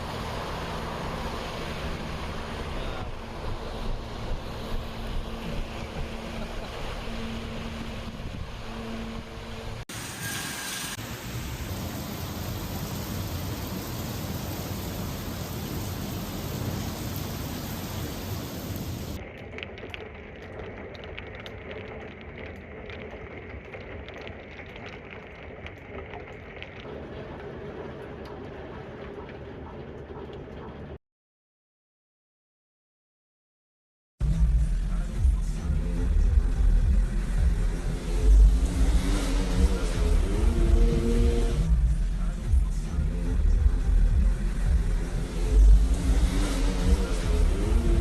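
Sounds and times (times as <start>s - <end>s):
heavy rain: 10.0s - 30.9s, 43.3s - 48.0s.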